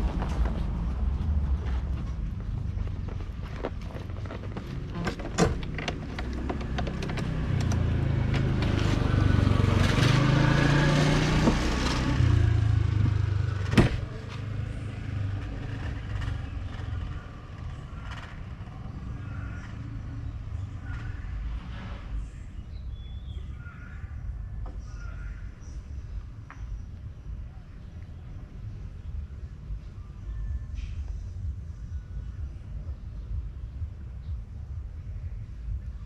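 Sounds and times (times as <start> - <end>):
road rumble: 0.0 - 36.0
motorbike engine: 2.4 - 21.5.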